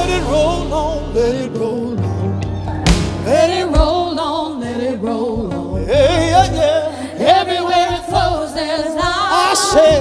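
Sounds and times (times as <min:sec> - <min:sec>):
live worship band playing: 0:00.0 - 0:10.0
low drum thumps: 0:02.7 - 0:04.3.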